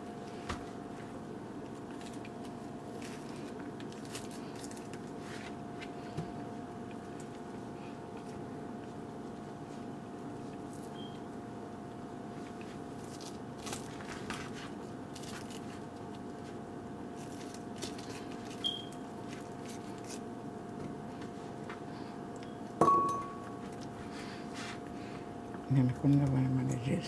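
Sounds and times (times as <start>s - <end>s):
steady hum: 0.0s - 27.0s
sharp ringing knock: 22.8s - 23.5s.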